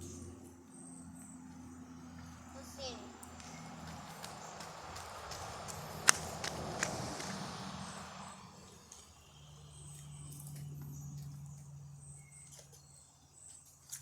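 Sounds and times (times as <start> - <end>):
low steady hum: 0.0 - 13.7
soft rushing noise: 2.3 - 9.0.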